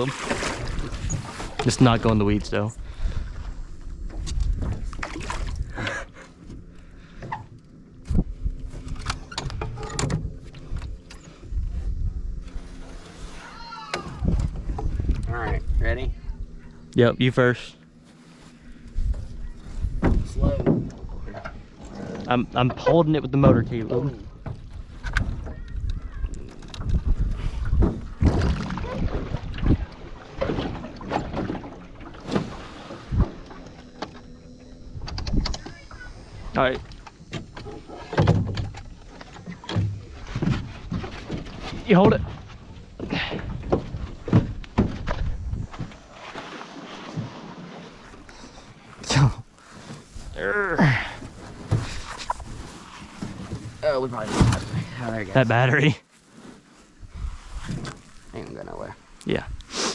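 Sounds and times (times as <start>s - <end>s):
wind buffeting microphone: 14.0s - 16.9s, 18.8s - 22.6s, 24.1s - 30.6s, 42.2s - 45.9s
small boat knocking and bumping: 18.8s - 50.1s
electric motor humming: 32.7s - 37.6s
knocks and thumps: 37.3s - 46.0s.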